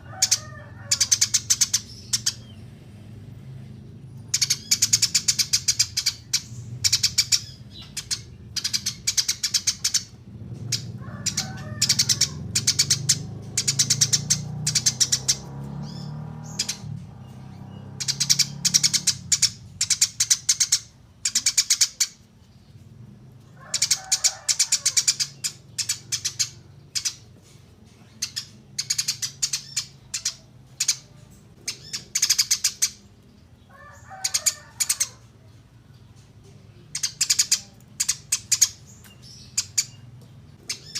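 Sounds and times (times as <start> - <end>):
low rattling bird calls: 0.0 - 40.9
songbirds chirping: 0.0 - 40.9.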